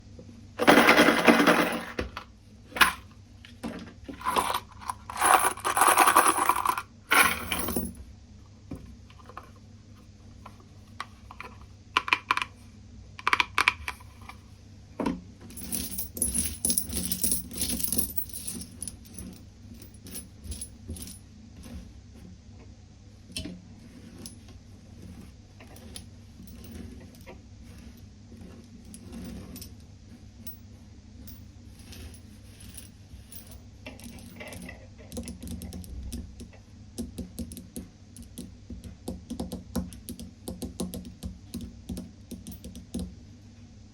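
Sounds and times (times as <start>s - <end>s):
metal coins jingling and clinking: 0.6s - 2.0s, 4.2s - 8.0s, 15.6s - 21.2s.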